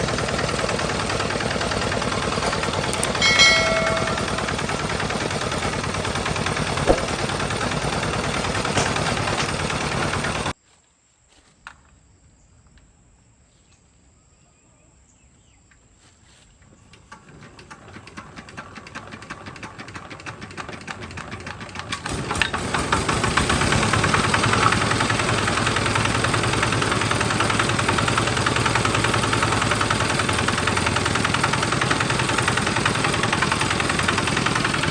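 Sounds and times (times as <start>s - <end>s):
tractor engine running: 0.0s - 10.6s, 22.1s - 34.9s
short pitched tone: 3.0s - 4.9s.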